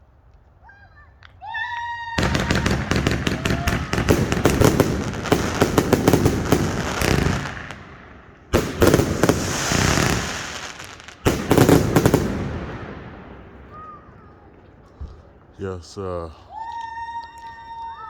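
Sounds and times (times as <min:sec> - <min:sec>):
fireworks bangs and crackling: 0:02.2 - 0:15.6.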